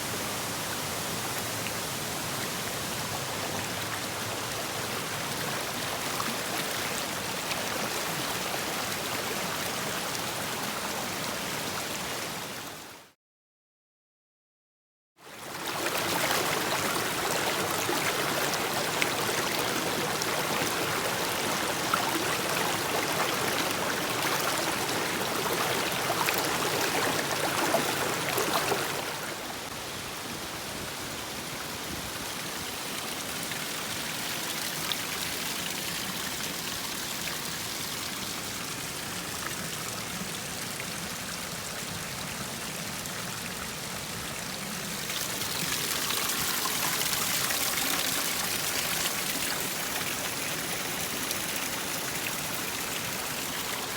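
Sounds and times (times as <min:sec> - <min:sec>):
mountain stream rushing: 0:15.4 - 0:53.9.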